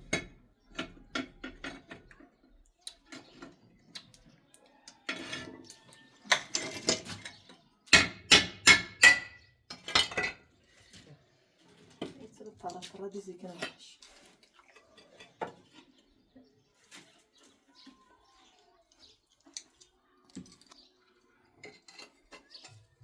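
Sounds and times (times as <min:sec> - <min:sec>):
hard objects clattering and clinking: 0:04.9 - 0:18.2, 0:18.8 - 0:23.0.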